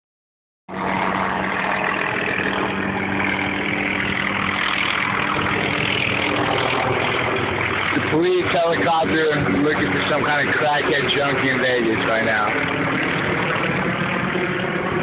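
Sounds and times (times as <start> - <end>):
helicopter flying overhead: 0.7 - 15.0.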